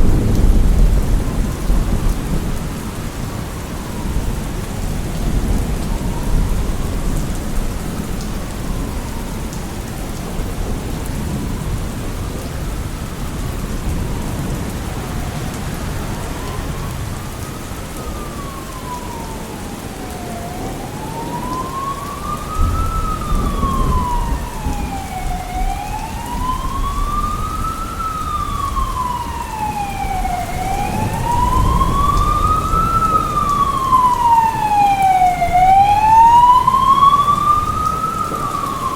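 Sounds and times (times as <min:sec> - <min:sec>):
emergency vehicle siren wailing: 0:00.0 - 0:38.9
heavy rain: 0:00.0 - 0:38.9
low rumbles of thunder: 0:00.0 - 0:38.9.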